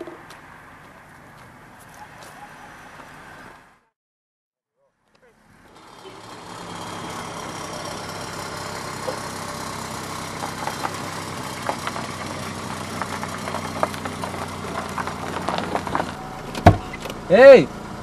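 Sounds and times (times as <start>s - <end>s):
car engine running at low speed: 5.0s - 18.0s.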